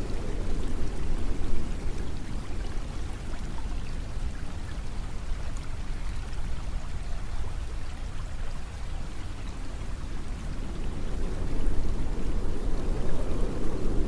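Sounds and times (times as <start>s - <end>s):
continuous low rushing noise: 0.0s - 4.3s, 8.9s - 14.0s.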